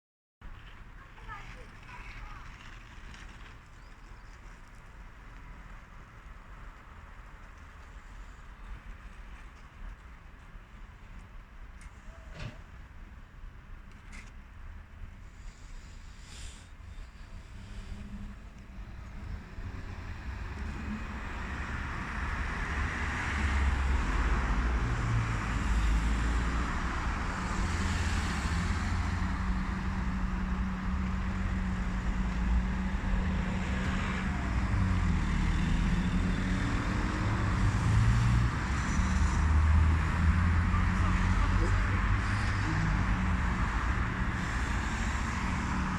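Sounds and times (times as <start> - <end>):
heavy truck engine rumble: 15.4 - 45.9.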